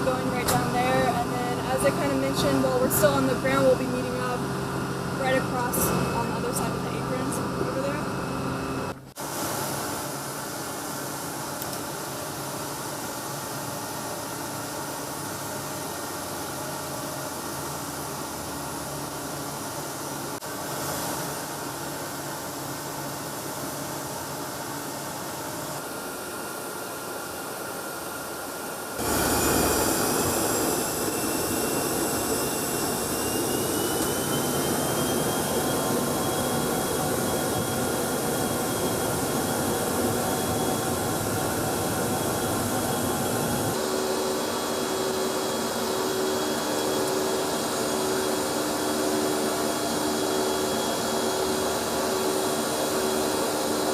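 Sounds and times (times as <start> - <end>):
jet aircraft engine: 0.0 - 53.9
high whine rising in pitch: 29.0 - 53.9.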